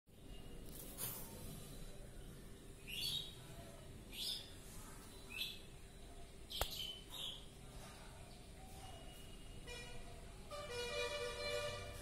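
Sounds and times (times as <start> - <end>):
small bird chirping: 2.8 - 7.5
sharp click: 6.6 - 6.8.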